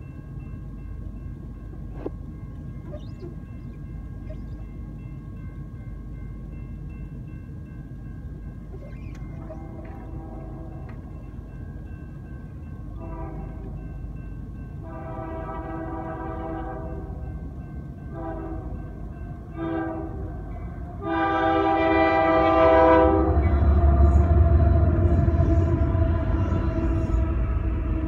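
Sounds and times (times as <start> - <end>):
locomotive passing rumble: 0.0 - 28.0
locomotive air horn blasts: 9.3 - 11.0, 13.0 - 13.8, 14.8 - 17.2, 18.1 - 18.8, 19.5 - 28.0.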